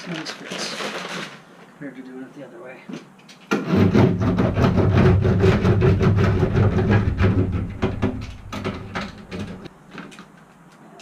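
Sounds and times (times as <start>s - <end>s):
sheet metal panel rumbling and rattling: 3.6s - 9.7s.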